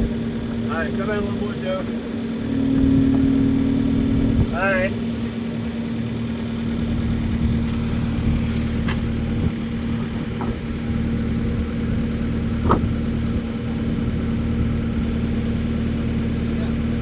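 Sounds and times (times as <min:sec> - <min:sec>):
machine engine idling: 0:00.8 - 0:07.2.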